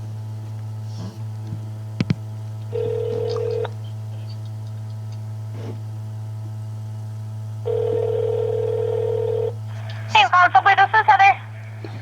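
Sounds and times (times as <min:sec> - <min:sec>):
low electrical hum: 0:00.0 - 0:12.0
telephone ringback tone: 0:02.7 - 0:03.7, 0:07.6 - 0:09.6.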